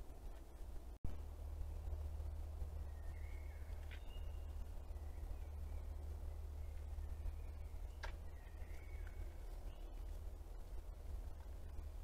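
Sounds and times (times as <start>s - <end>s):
steady low rumble: 0.0s - 12.0s
songbirds whistling: 2.7s - 11.0s.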